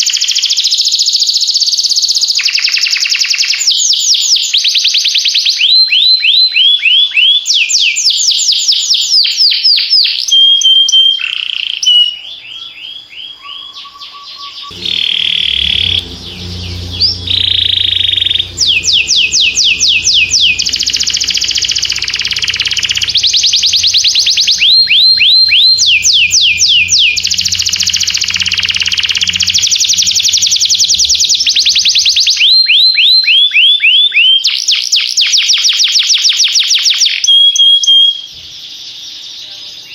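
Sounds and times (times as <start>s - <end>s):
steady low hum: 14.7s - 32.2s.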